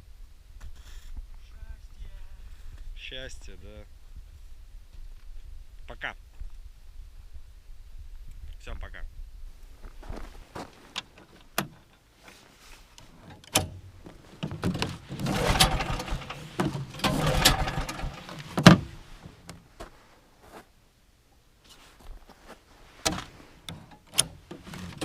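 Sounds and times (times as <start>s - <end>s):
engine rattling turning over: 14.5s - 19.4s
recoil pull-starter yanked: 14.6s - 19.6s, 23.1s - 25.0s.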